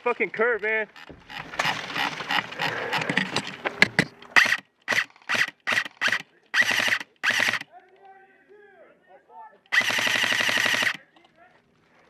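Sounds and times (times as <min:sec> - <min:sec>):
gearbox whirring and clacking: 0:00.6 - 0:07.7, 0:09.7 - 0:11.2
airsoft gun full-auto firing: 0:04.4 - 0:07.7, 0:09.7 - 0:11.1.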